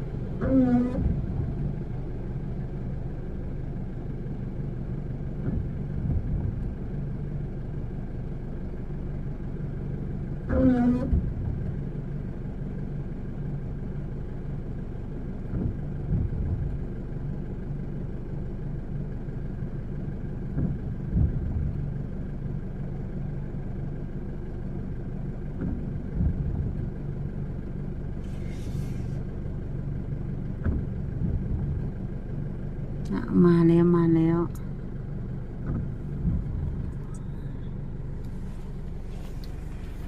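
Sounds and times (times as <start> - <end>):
soft low thumps: 0.0 - 3.5, 5.2 - 7.0, 10.6 - 11.8, 15.4 - 16.9, 20.4 - 22.0, 25.5 - 27.8, 29.6 - 40.0
car idling hum: 0.0 - 40.0.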